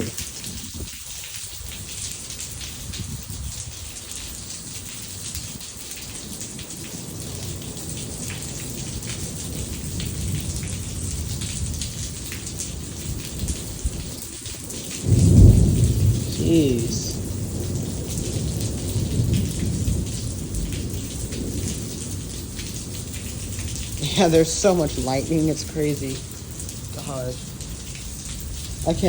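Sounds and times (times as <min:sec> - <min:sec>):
heavy rain falling: 0:00.0 - 0:29.0
low thunder rumble: 0:06.7 - 0:29.0.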